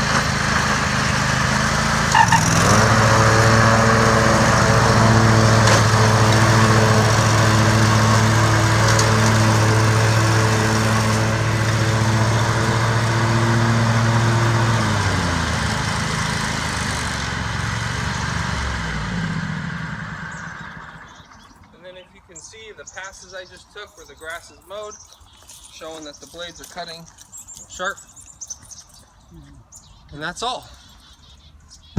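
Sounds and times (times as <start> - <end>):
riding lawn mower engine: 0.0 - 28.0.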